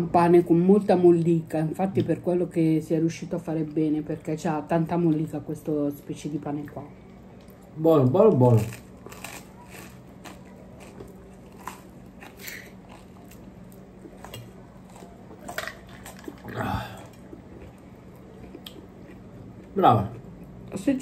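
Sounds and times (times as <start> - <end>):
steady low hum: 0.0 - 21.0
person chewing bread: 8.4 - 20.7.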